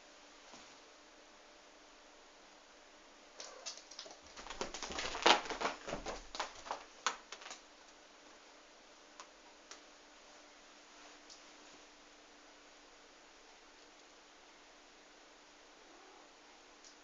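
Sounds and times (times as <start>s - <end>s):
cat scrambling with taps and clatter: 3.4s - 7.6s.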